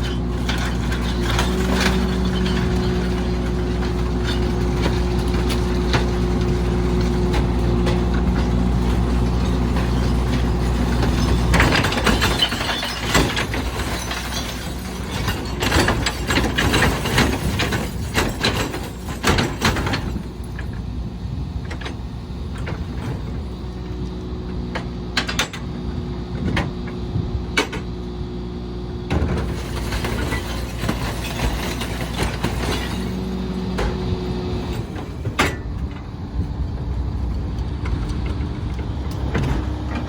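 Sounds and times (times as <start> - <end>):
clattering knocks of trash loading: 0.0 - 23.6, 29.0 - 37.0, 37.8 - 40.0.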